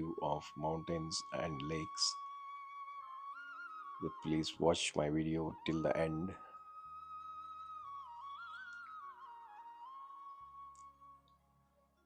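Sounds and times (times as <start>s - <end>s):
soft low drone: 0.0s - 2.2s, 4.0s - 7.0s
flute-like melody: 0.0s - 12.0s.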